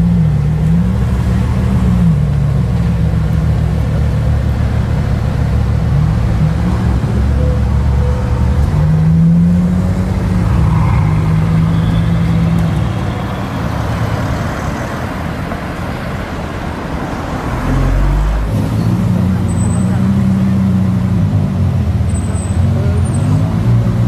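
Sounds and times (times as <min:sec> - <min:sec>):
car engine at low revs: 0:00.0 - 0:10.6.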